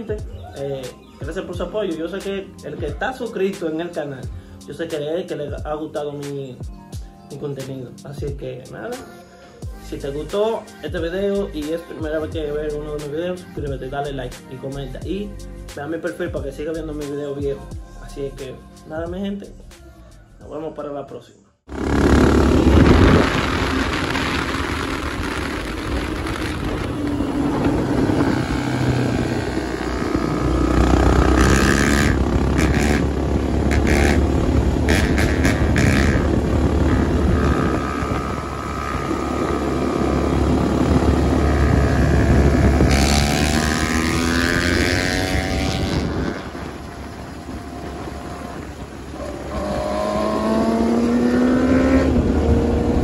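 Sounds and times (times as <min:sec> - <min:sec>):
motorcycle engines running: 0:21.7 - 0:53.0
wind on microphone: 0:21.7 - 0:53.0.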